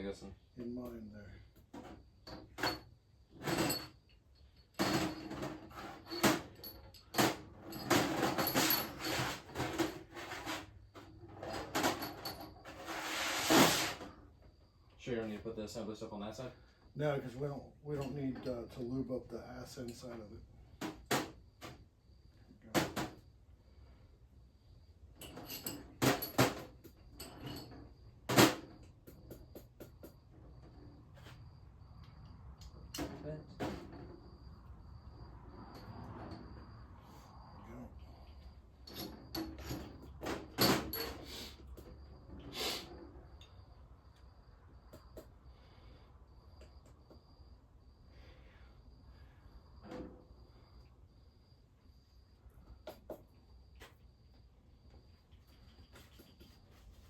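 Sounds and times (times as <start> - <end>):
metal parts scraping: 4.8 - 10.7, 11.4 - 14.0
engine parts and tools knocking: 28.3 - 30.4.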